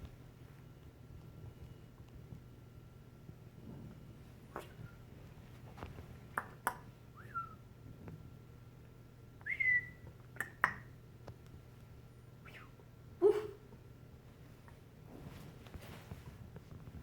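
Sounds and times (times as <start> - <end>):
bird whistling: 7.2 - 7.6, 9.4 - 10.0.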